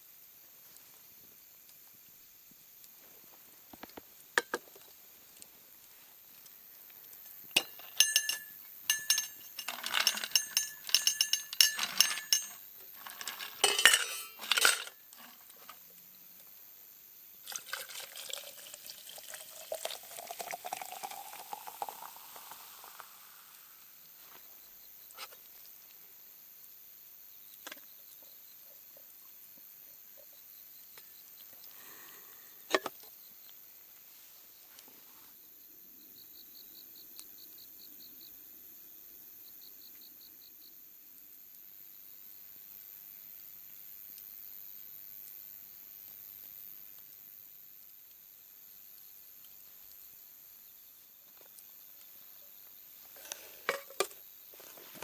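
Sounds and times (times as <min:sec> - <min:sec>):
glassware clinking: 0:07.6 - 0:12.6, 0:13.4 - 0:15.0, 0:17.5 - 0:23.0
liquid pouring into a vessel: 0:17.4 - 0:23.9.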